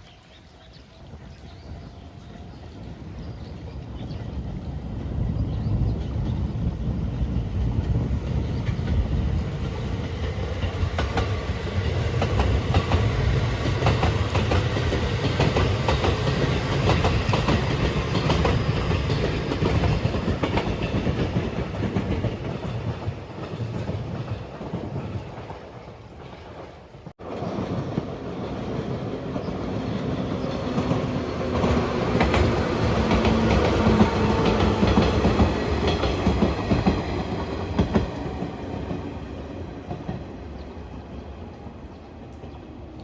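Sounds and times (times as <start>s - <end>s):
train rumble: 1.2s - 43.0s
train wheels clacking over rail joints: 7.4s - 28.1s, 30.4s - 39.1s.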